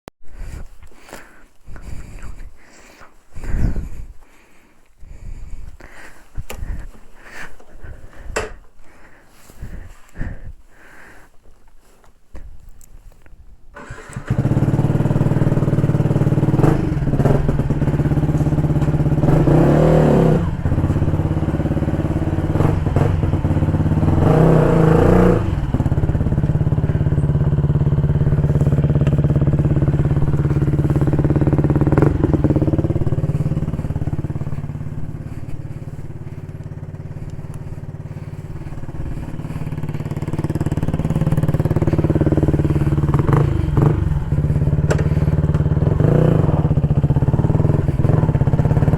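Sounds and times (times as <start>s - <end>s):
motorcycle engine revving: 13.8s - 48.9s.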